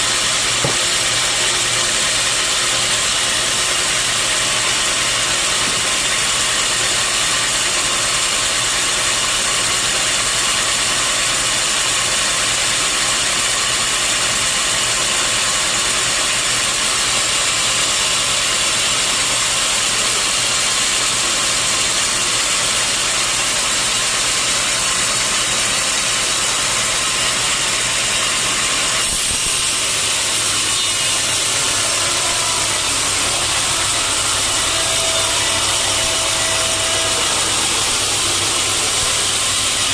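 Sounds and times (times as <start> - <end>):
sawmill machinery humming: 0.0 - 39.9
high hiss: 29.0 - 39.9.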